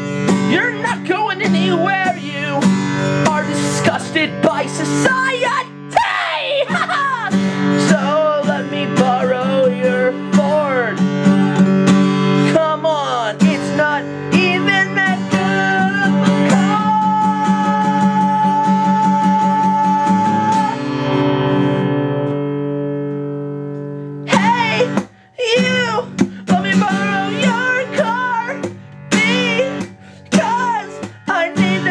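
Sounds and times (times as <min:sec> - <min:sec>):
person singing: 0:00.0 - 0:21.2, 0:24.2 - 0:31.9
acoustic guitar strumming chords: 0:00.0 - 0:31.9.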